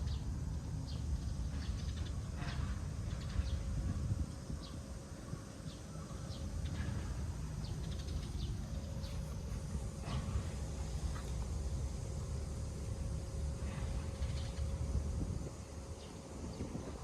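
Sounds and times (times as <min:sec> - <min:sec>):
low outdoor rumble: 0:00.0 - 0:17.0
small birds chirping: 0:04.6 - 0:14.8.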